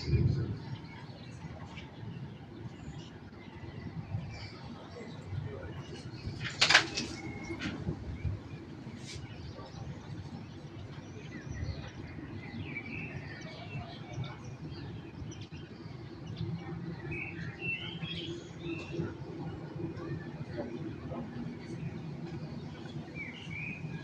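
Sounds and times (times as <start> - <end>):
city noise rumble: 0.0 - 24.0
songbirds chirping: 0.0 - 24.0.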